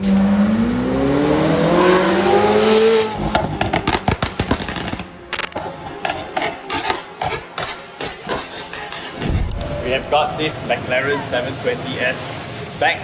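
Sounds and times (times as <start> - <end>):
car engine revving: 0.0 - 6.8
exhaust cracks and clicks: 3.2 - 5.6.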